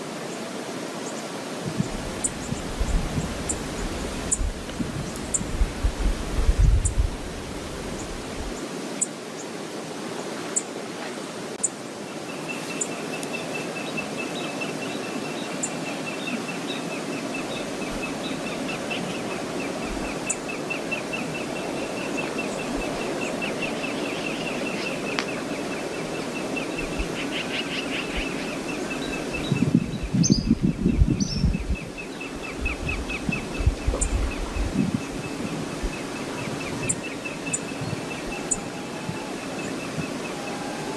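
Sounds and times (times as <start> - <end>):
waterfall rushing: 0.0 - 30.2, 31.8 - 40.9
wind buffeting microphone: 1.6 - 8.6, 17.2 - 40.9.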